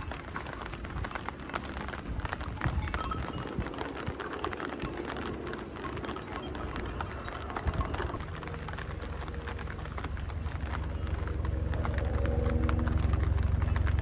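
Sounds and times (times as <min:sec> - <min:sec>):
footsteps on wet pavement: 0:00.0 - 0:14.0
low steady hum: 0:00.0 - 0:14.0
rain pattering on pavement: 0:00.0 - 0:14.0.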